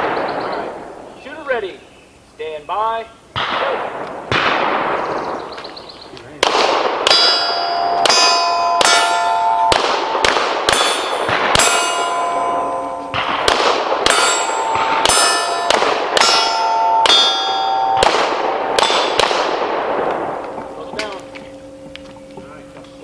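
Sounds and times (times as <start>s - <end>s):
pistol shots: 3.4s - 5.7s, 6.4s - 21.7s
steel plate ringing: 7.0s - 23.0s.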